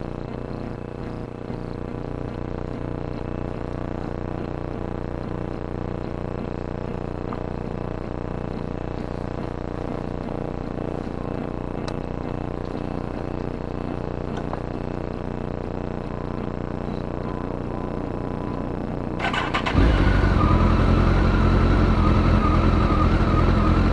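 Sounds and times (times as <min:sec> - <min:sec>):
motorcycle engine idling: 0:19.2 - 0:23.9.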